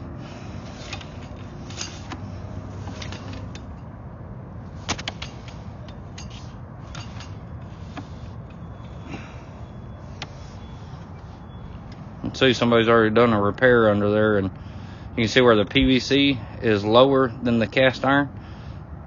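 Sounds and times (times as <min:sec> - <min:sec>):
cable clicks and knocks: 0:04.8 - 0:09.0.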